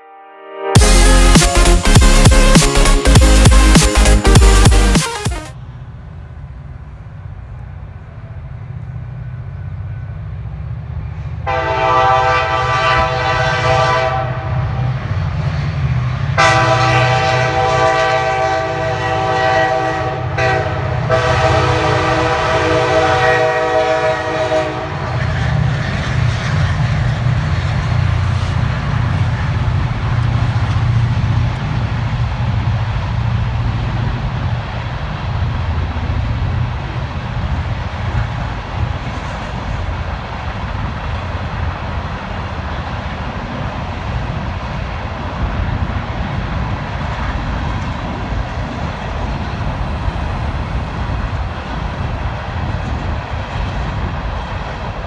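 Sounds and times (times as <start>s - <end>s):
diesel train engine rumble: 0.8s - 55.0s
rail noise of passing cars: 5.5s - 55.0s
locomotive horn blasts: 11.4s - 15.0s, 16.4s - 25.4s.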